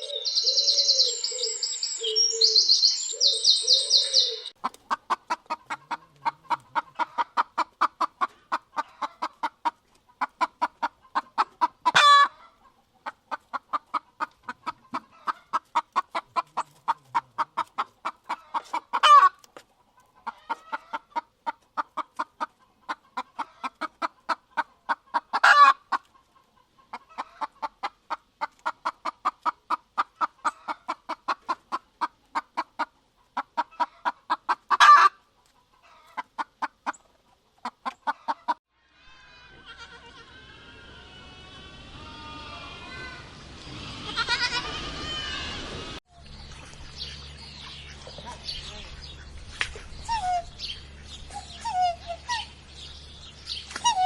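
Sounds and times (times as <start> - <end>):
hen squawking: 0.0 - 4.6, 47.8 - 52.6, 53.7 - 54.0
hen clucking: 0.0 - 38.6, 39.3 - 46.0, 46.6 - 54.0.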